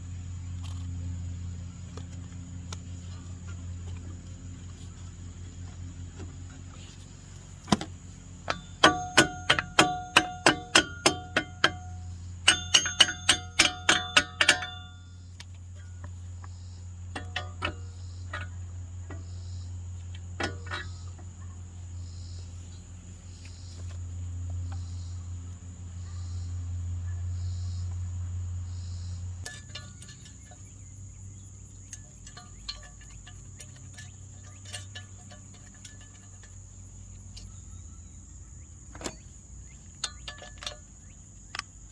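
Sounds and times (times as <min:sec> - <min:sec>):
hammer striking metal: 0:08.5 - 0:15.0.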